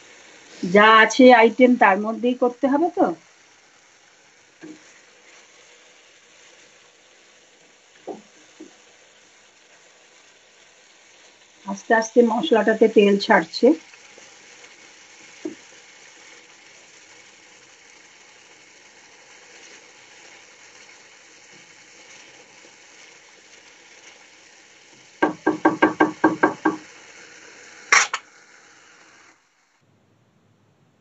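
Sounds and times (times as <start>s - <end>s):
spices sizzling in oil: 0.0s - 29.8s
knocks: 25.2s - 26.8s.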